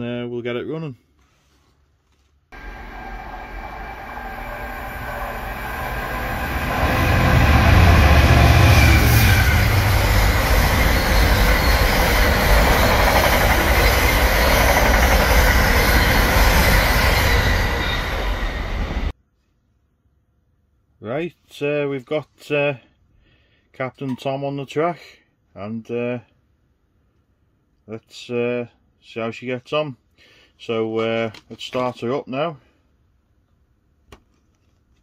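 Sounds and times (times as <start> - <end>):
freight train rumbling past: 2.6 - 19.1.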